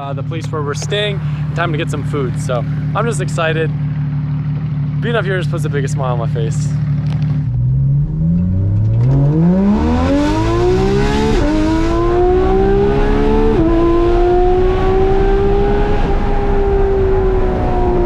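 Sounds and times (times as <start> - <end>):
sports car engine accelerating: 0.0 - 18.0.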